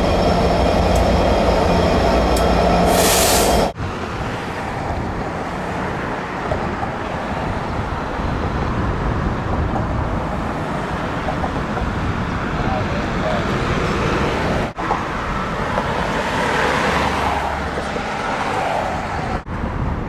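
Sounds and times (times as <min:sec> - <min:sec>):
train rumbling past: 0:00.0 - 0:19.4
short high hiss: 0:02.9 - 0:03.7.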